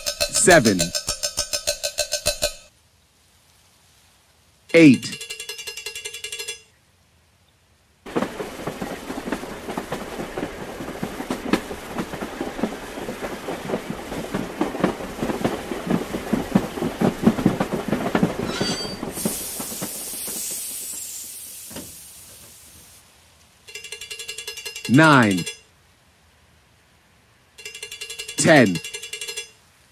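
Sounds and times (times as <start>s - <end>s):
train wheels clickety-clack on rails: 0.0s - 2.7s, 8.1s - 22.6s, 23.7s - 25.6s, 27.6s - 29.5s
high hiss: 18.4s - 23.1s.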